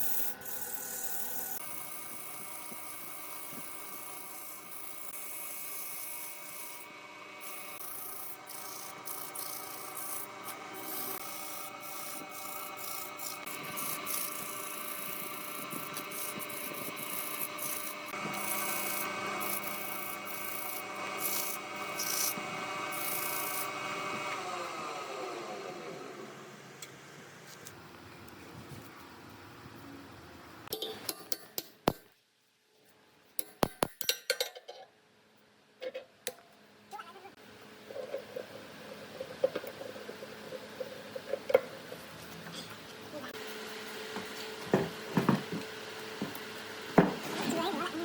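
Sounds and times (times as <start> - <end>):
motor winding down: 0.0 - 27.0
woodworking machine motor running: 0.2 - 27.4
wood sanding rasp: 7.5 - 23.8.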